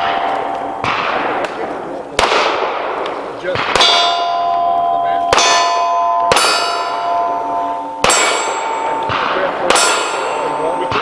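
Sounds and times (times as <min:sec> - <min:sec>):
steel plate ringing: 0:00.0 - 0:01.8, 0:03.7 - 0:11.0
pistol shots: 0:00.0 - 0:11.0.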